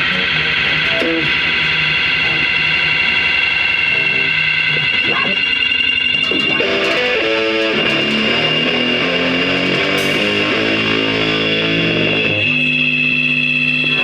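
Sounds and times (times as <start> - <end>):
plucked electric guitar notes: 0.0 - 14.0
steady high-pitched tone: 0.0 - 14.0.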